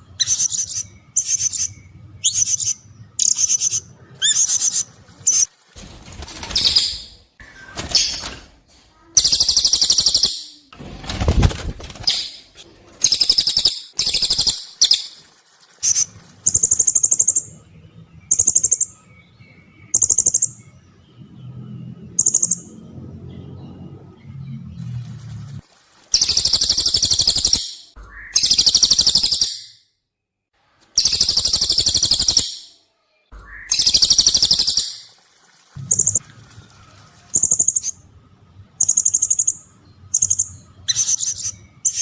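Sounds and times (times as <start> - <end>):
high-pitched chirping bird trills: 0.0 - 5.5, 9.2 - 10.7, 12.0 - 15.2, 18.2 - 20.8, 22.0 - 22.8, 26.2 - 29.9, 30.9 - 32.8, 33.4 - 35.1, 35.8 - 36.2, 37.3 - 38.0, 38.8 - 42.0.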